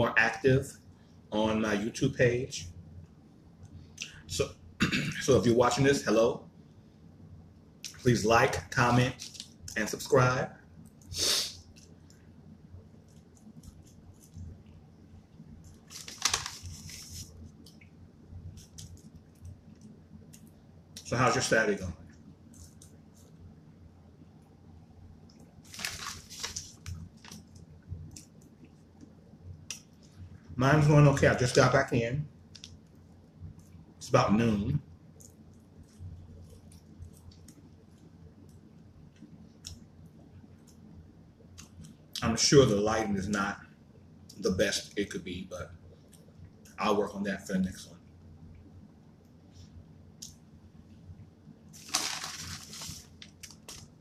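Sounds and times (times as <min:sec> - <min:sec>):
soft chewing: 0:10.8 - 0:21.1, 0:22.0 - 0:23.5, 0:35.0 - 0:40.9, 0:45.8 - 0:46.8.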